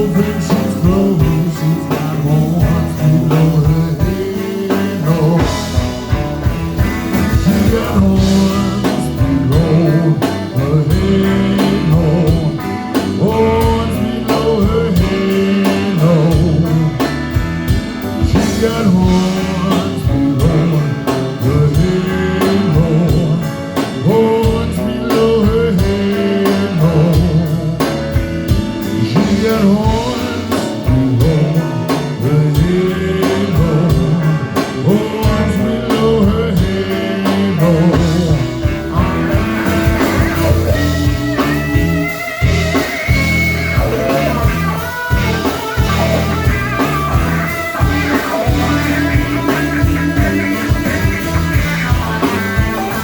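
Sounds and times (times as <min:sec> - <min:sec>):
blues band playing: 0:00.0 - 0:53.0
bending high guitar line: 0:33.2 - 0:53.0.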